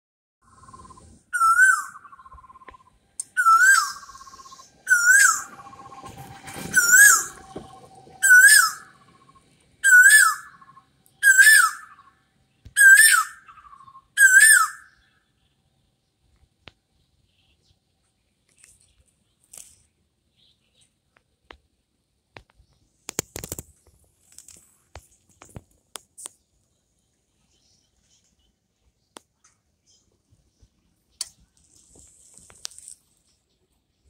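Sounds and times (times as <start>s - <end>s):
bird whistled call with trill: 0.5s - 12.2s, 12.8s - 15.1s.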